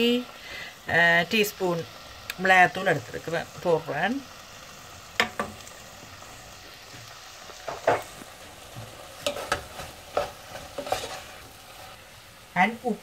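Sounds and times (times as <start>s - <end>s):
prawns sizzling in pot: 0.0s - 13.0s
spatula scraping pot: 8.7s - 12.0s.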